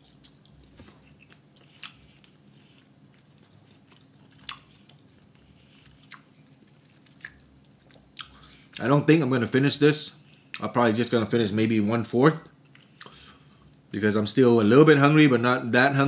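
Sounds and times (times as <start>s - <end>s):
person quietly chewing: 0.0s - 8.9s, 12.4s - 13.9s.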